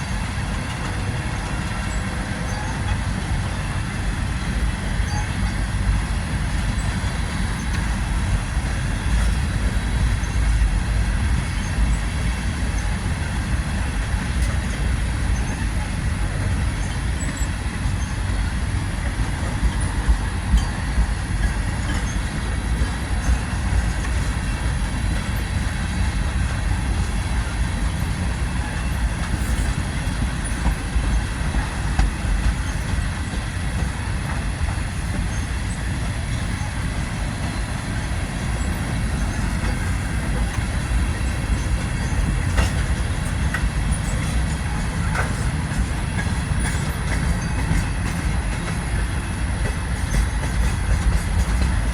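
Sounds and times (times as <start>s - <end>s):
faint wheel squeal: 0.0s - 8.0s
train wheel rumble: 0.0s - 51.9s.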